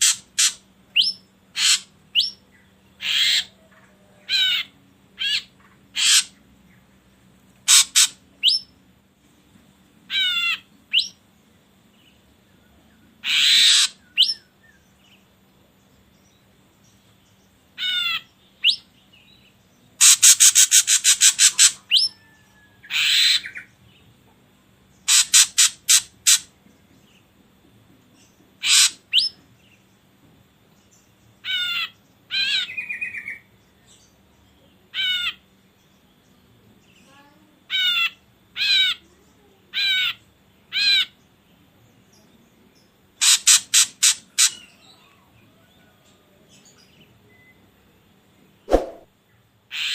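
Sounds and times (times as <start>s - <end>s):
bird calling: 0.0s - 2.4s, 3.0s - 6.4s, 7.7s - 8.7s, 10.1s - 11.2s, 13.2s - 14.8s, 20.0s - 23.7s, 28.6s - 29.4s.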